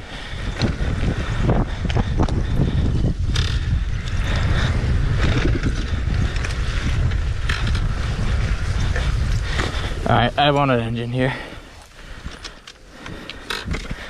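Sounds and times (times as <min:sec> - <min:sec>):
wind buffeting microphone: 0:00.0 - 0:14.0
dirt bike engine running: 0:00.3 - 0:11.5.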